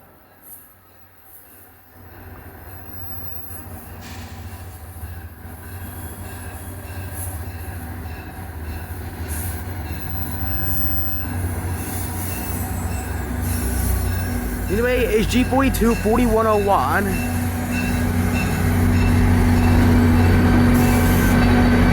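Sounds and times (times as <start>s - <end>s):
diesel locomotive engine drone: 12.3s - 21.9s.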